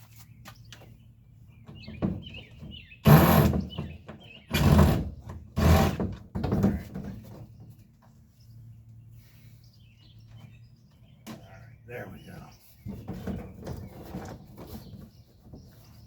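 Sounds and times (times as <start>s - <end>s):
tool working bolt on kayak hull: 3.0s - 3.7s, 4.5s - 6.7s.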